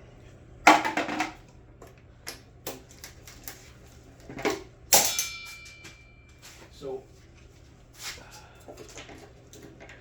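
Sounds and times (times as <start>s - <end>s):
metallic clang: 4.9s - 6.3s
tools clattering against metal: 4.9s - 6.4s.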